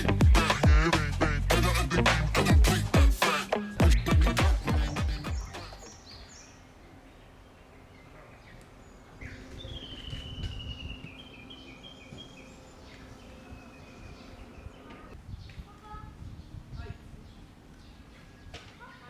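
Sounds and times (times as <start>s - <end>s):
wild bird singing: 0.0s - 15.6s
faint outdoor background: 0.0s - 19.0s.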